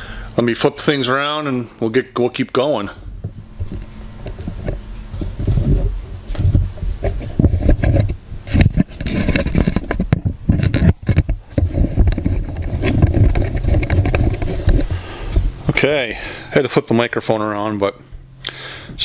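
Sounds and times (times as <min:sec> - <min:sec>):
microphone handling noise: 0:03.1 - 0:16.0.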